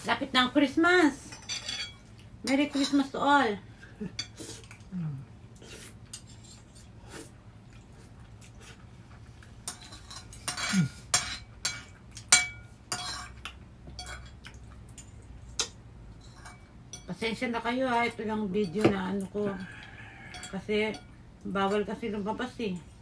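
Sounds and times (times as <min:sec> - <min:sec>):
cutlery clinking on plates and bowls: 0:01.3 - 0:02.0, 0:09.6 - 0:14.4, 0:20.3 - 0:21.1.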